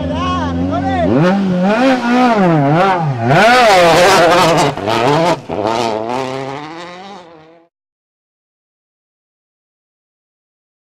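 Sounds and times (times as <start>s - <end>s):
rally car engine revving: 0.0s - 7.7s.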